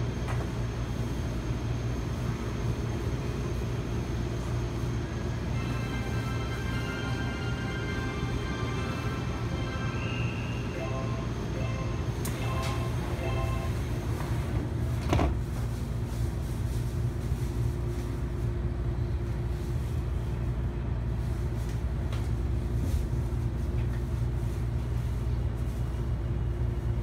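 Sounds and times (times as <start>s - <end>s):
train car hum: 0.0s - 27.0s
train doors thumping shut: 14.2s - 15.5s.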